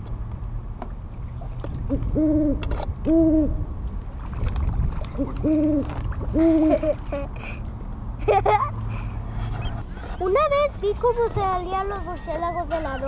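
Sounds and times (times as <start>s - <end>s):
bird hooting: 11.7s - 13.0s.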